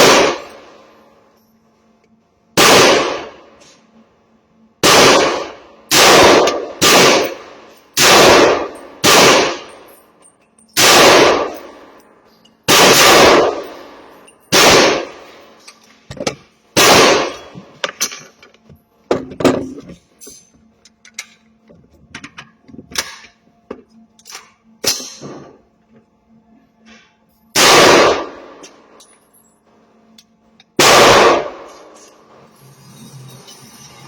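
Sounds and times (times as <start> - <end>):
gunshots with short echo: 0.0 - 0.6, 2.6 - 3.4, 4.8 - 9.7, 10.8 - 11.7, 12.7 - 13.8, 14.5 - 15.2, 16.8 - 17.5, 27.6 - 28.5, 30.8 - 31.9.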